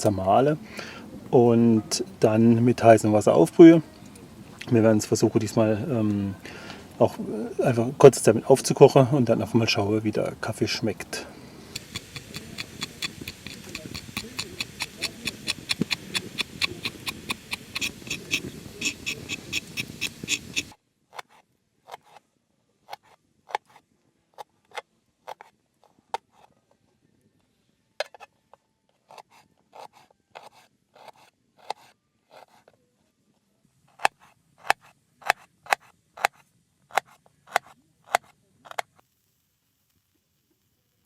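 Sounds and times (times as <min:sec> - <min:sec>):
blade cutting roots: 0:11.7 - 0:22.2.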